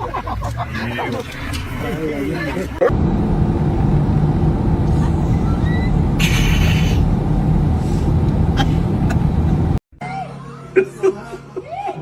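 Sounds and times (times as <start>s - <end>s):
low rumble: 2.9s - 9.8s.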